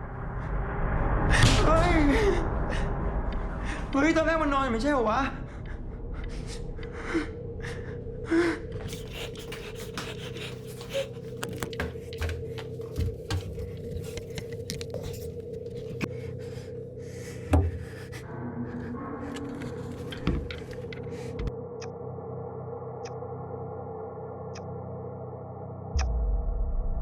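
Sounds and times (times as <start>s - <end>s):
electrical hum: 2.1s - 27.0s
man breathing hard: 5.4s - 12.2s, 16.1s - 19.2s.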